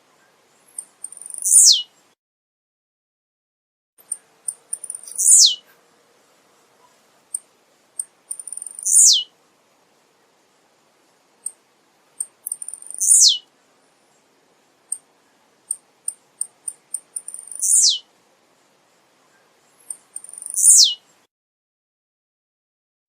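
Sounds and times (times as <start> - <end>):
bird song with downward sweep: 1.1 - 1.9, 4.8 - 5.6, 8.4 - 9.3, 12.6 - 13.5, 17.2 - 18.0, 19.4 - 21.0.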